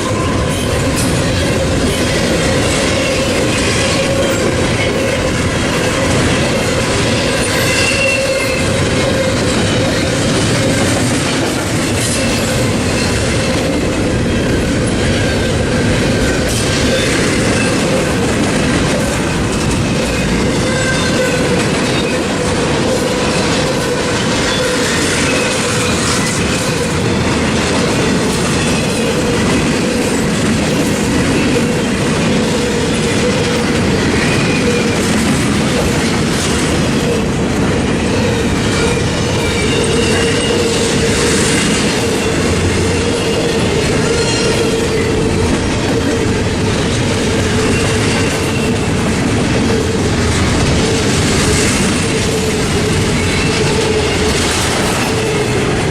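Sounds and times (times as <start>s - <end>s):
train wheels clattering on rails: 0.0s - 55.9s
wheel squeals: 7.1s - 10.9s.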